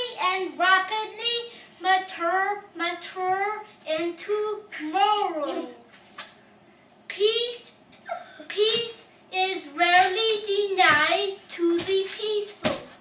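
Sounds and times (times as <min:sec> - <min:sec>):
child singing: 0:08.5 - 0:13.0.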